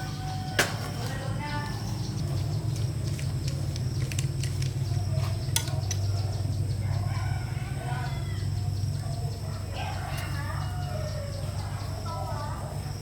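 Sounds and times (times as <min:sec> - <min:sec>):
low mechanical hum: 0:00.0 - 0:13.0
sharp clicks: 0:02.7 - 0:06.2.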